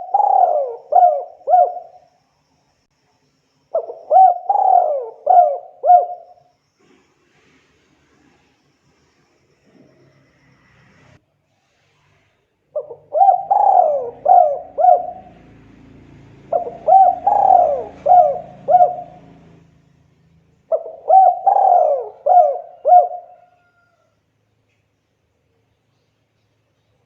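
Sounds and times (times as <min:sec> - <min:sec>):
dove cooing: 0:00.0 - 0:02.1, 0:03.8 - 0:06.4, 0:12.7 - 0:19.7, 0:20.7 - 0:23.9.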